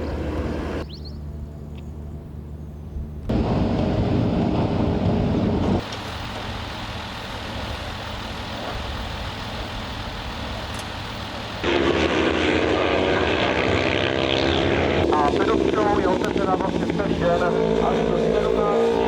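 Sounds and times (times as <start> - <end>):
racing motorcycle engines: 11.6 - 19.0.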